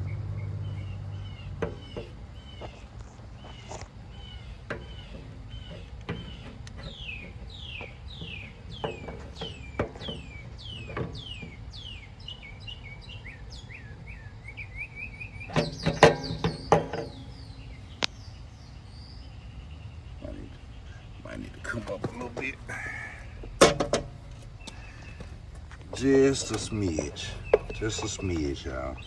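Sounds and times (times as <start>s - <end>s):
songbird whistling: 0.0s - 29.0s
loud clanks and knocks: 1.4s - 2.9s, 4.6s - 11.7s, 15.5s - 17.6s, 21.7s - 29.0s.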